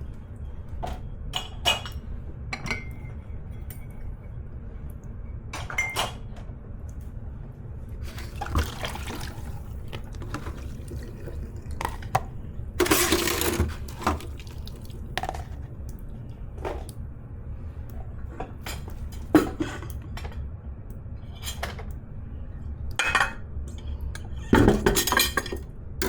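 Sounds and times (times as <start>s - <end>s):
dishes and cutlery clinking: 5.6s - 6.3s
tap water splashing: 8.1s - 15.6s.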